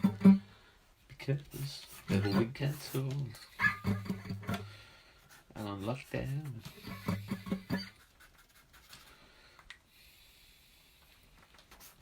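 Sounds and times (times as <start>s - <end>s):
pen scratching on paper: 1.6s - 4.6s, 5.3s - 9.0s.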